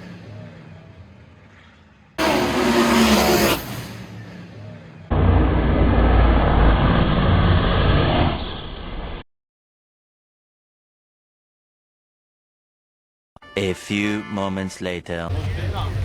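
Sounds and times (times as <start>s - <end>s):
race cars passing at full throttle: 0.0s - 7.8s.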